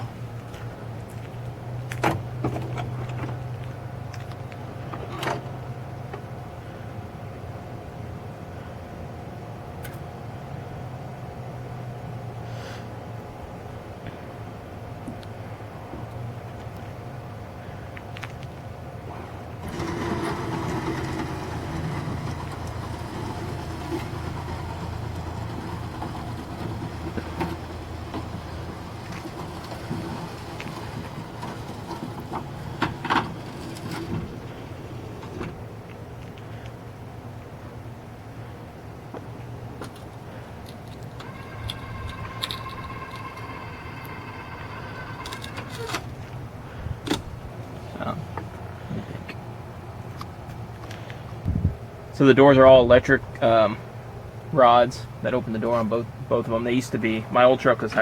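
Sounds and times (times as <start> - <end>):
motor hum: 19.6 - 35.6, 40.9 - 47.5.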